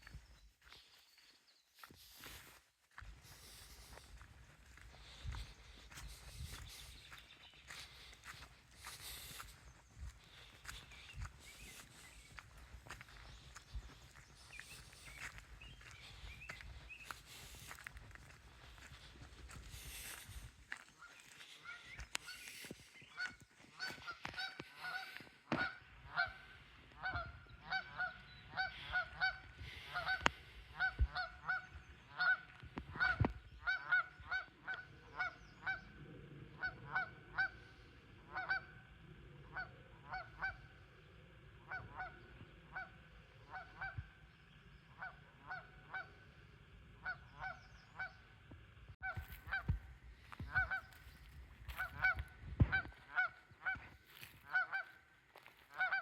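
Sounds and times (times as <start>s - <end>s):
geese honking: 1.9s - 48.4s, 49.0s - 56.0s.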